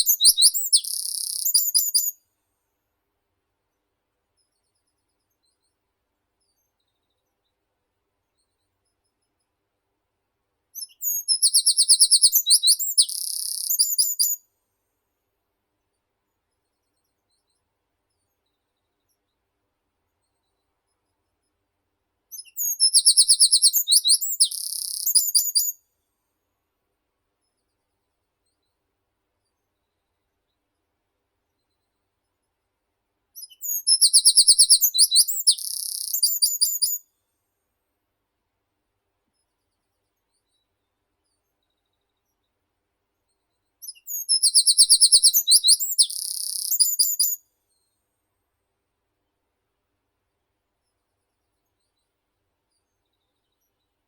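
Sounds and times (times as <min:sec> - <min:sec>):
songbird singing: 0:00.0 - 0:02.2, 0:10.8 - 0:14.4, 0:22.3 - 0:25.8, 0:33.4 - 0:37.1, 0:43.8 - 0:47.4.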